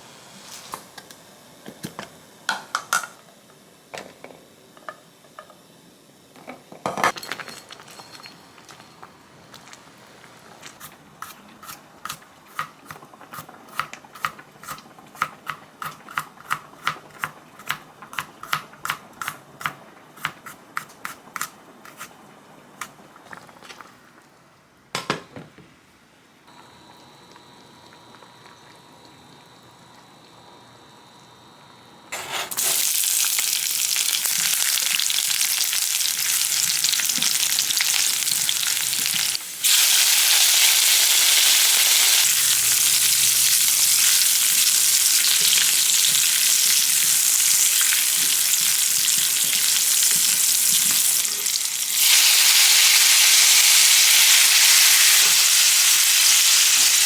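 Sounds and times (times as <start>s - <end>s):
food sizzling in frying pan: 0.0s - 3.4s, 32.2s - 57.0s.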